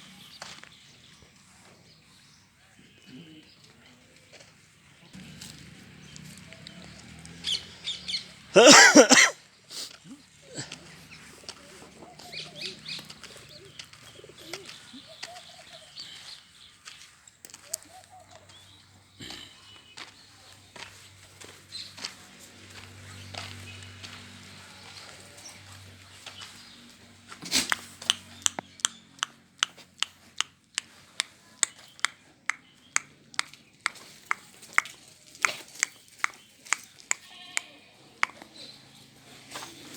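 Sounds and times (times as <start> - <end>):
birds chirping: 5.9 - 9.3, 10.1 - 27.1, 27.7 - 37.6
sharp clicks or taps: 27.7 - 37.3.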